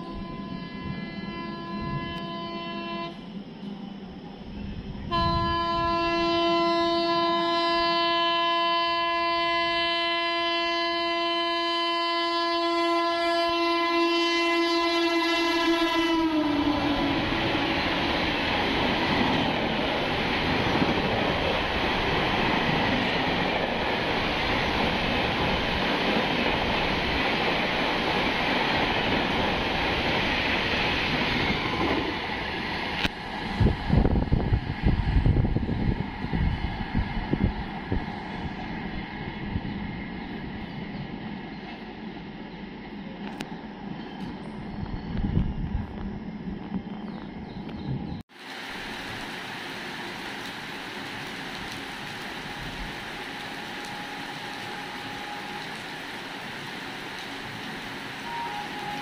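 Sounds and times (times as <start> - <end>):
train horn blast: 0.0 - 3.2, 5.1 - 17.7, 52.9 - 56.4, 58.2 - 59.0
gusty buffeting wind noise: 4.4 - 6.4, 16.0 - 42.2, 44.2 - 49.4
train coaches rushing and clattering: 16.4 - 38.4.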